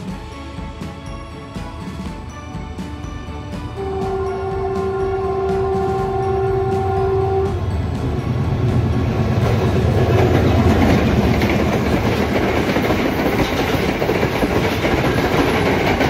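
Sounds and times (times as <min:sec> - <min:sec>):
train wheels clattering: 0:03.8 - 0:16.0.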